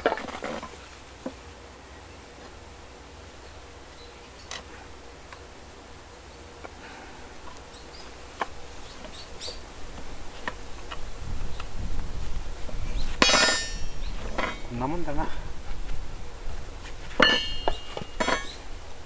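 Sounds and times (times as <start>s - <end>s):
clicks of steel rebar handled: 17.2s - 18.6s.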